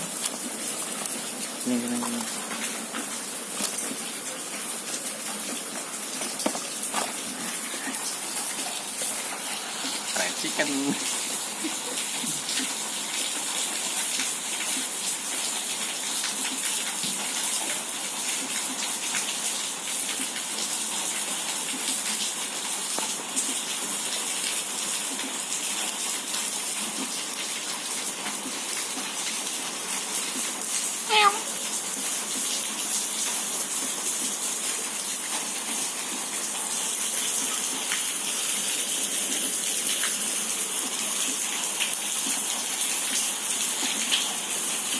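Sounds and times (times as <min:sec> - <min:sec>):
rain patter and drips: 0:00.0 - 0:44.9
water rushing on street: 0:00.0 - 0:44.9
short pitched cry: 0:31.1 - 0:31.5.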